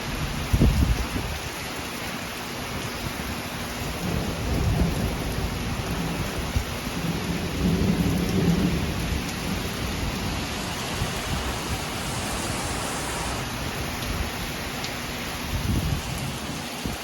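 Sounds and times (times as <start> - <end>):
heavy rain pouring: 0.0 - 17.0
deep rumble of thunder: 3.9 - 14.5.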